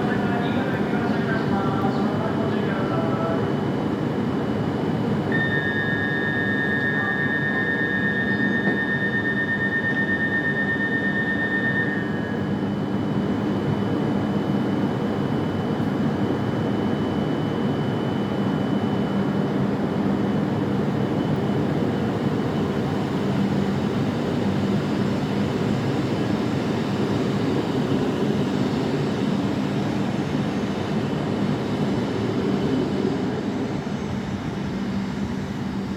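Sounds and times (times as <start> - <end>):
faint high whine: 5.3 - 12.6
high-speed train rushing: 27.0 - 35.9.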